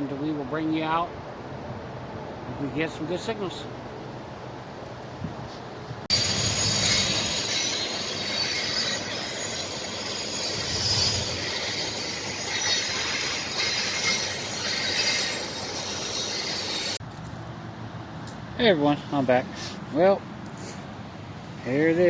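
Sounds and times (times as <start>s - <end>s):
train cars rolling: 6.1s - 17.0s
wheels squealing on rails: 6.1s - 17.0s.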